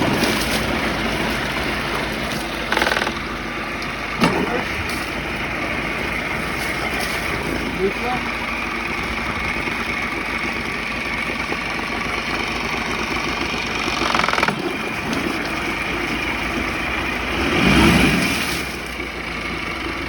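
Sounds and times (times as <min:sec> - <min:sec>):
outboard motor idling: 0:00.0 - 0:20.0.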